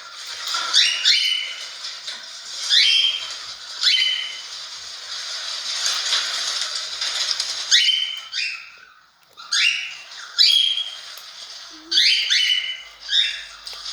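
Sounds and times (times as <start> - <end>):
cockatiel squawking: 11.7 - 13.6.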